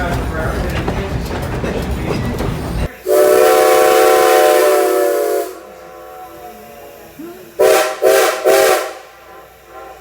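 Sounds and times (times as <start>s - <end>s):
steam hissing: 0.0s - 10.0s
steam locomotive whistle: 3.0s - 7.0s, 7.6s - 10.0s.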